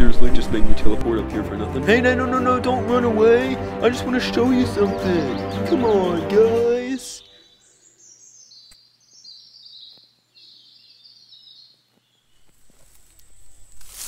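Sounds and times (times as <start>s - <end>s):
bird singing high chirps: 4.8s - 12.5s.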